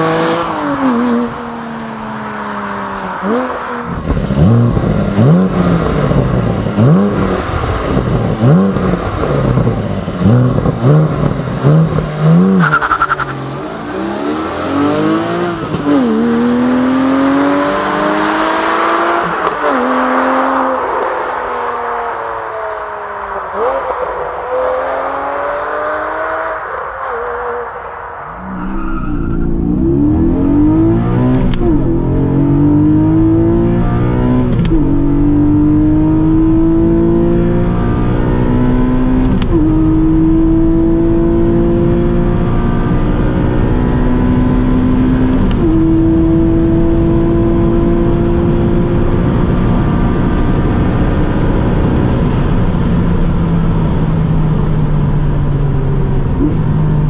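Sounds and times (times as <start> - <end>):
car engine accelerating hard: 0.0 - 57.0.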